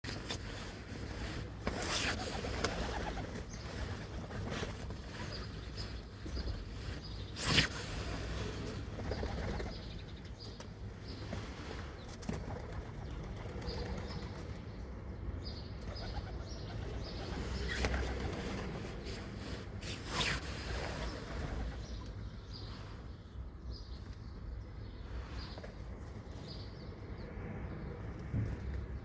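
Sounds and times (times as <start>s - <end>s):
pigeon wings flapping: 1.7s - 5.0s
small birds chirping: 1.8s - 27.3s.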